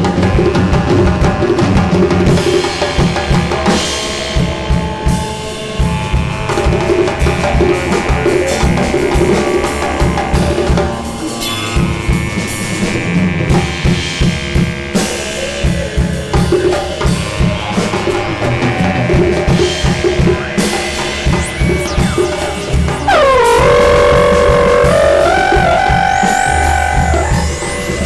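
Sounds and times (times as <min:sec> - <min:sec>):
drum kit and hand percussion: 0:00.0 - 0:28.0
ringing metal and drone tones: 0:20.5 - 0:28.0.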